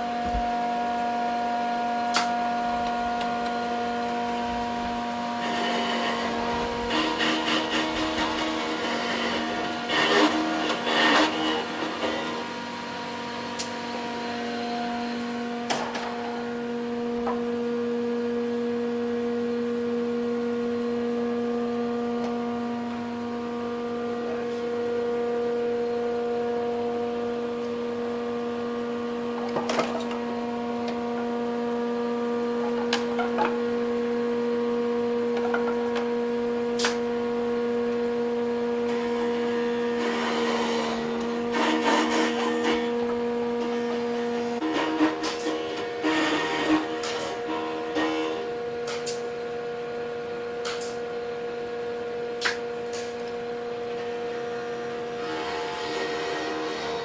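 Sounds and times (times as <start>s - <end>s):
power tool motor humming: 2.8s - 16.7s, 38.9s - 49.2s, 54.0s - 57.0s.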